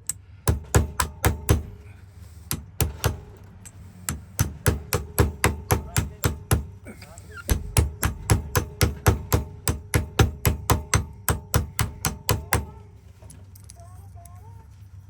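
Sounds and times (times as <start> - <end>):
rapid hammer taps: 0.0 - 1.8, 2.5 - 6.9, 7.5 - 12.8.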